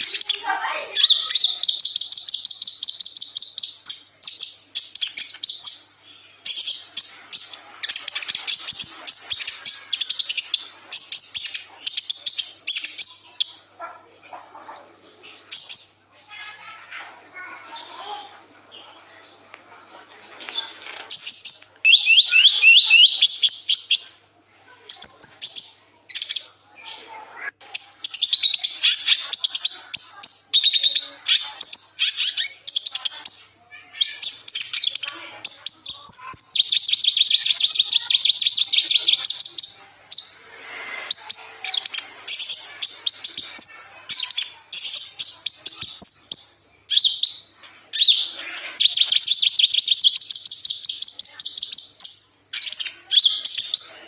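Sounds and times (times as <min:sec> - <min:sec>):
sunbird song trills: 0:21.1 - 0:24.2, 0:41.2 - 0:54.0.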